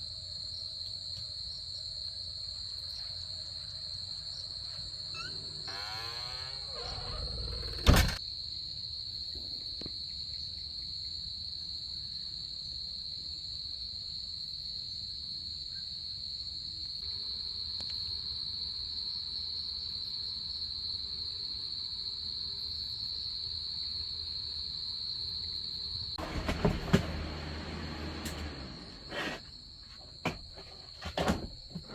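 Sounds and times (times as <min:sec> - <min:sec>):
night insects trilling: 0:01.4 - 0:09.1.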